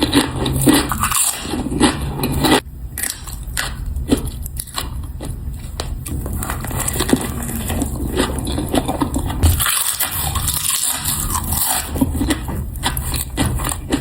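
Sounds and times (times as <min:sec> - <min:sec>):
chewing and crunching food: 0:00.0 - 0:14.0.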